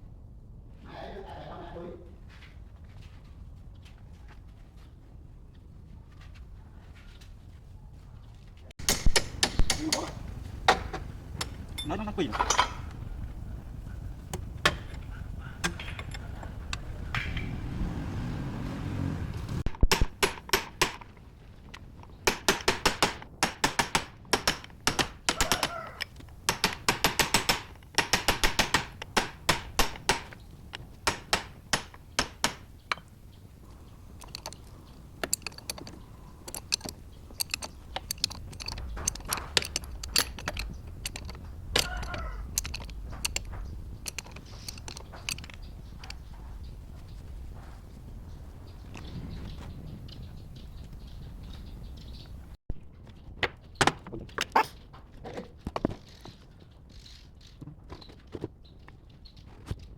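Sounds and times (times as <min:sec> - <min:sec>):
metal striking metal: 0:08.8 - 0:10.9.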